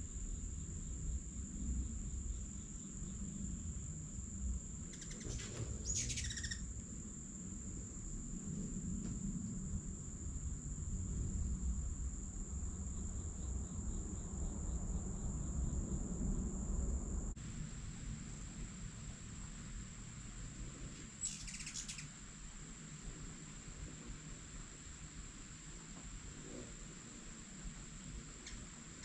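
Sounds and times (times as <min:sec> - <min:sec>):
bird calling: 0:04.9 - 0:06.7, 0:21.2 - 0:22.1, 0:28.4 - 0:29.0
high-pitched insect drone: 0:04.9 - 0:07.2, 0:21.2 - 0:23.0.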